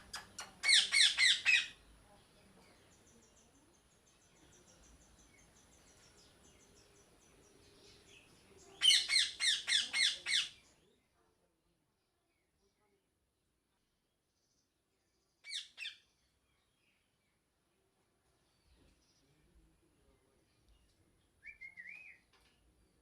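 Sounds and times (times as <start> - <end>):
small bird chirping: 0.0 - 11.0, 14.4 - 17.3
parrot squawking: 0.2 - 1.8, 8.8 - 10.5.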